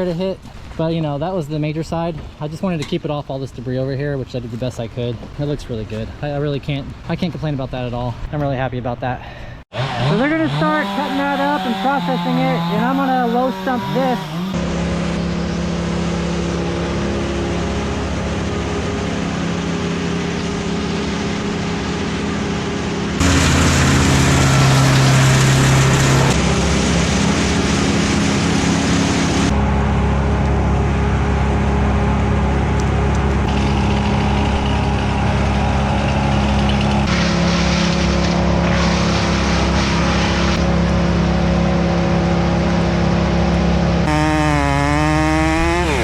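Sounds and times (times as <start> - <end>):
tree-cutting petrol engines running: 9.7 - 46.0.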